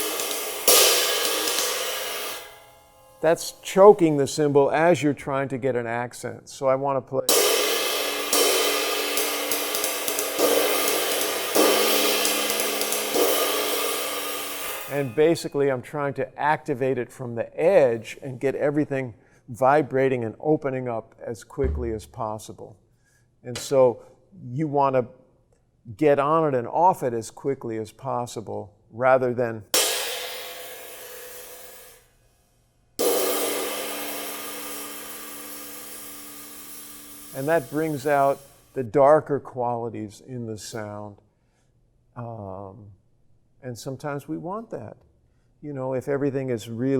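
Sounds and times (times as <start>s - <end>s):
cymbal ringing from accents: 0.0s - 4.6s, 7.3s - 15.5s, 29.8s - 32.1s, 33.0s - 38.7s
light ride cymbal strokes: 0.0s - 4.7s, 7.3s - 15.5s, 29.8s - 32.3s, 33.0s - 38.8s.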